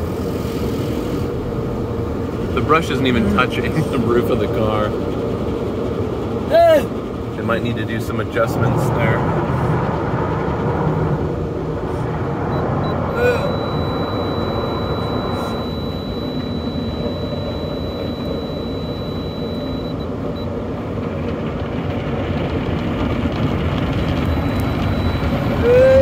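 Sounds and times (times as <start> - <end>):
faint high whine: 12.5 - 20.5, 24.1 - 26.0.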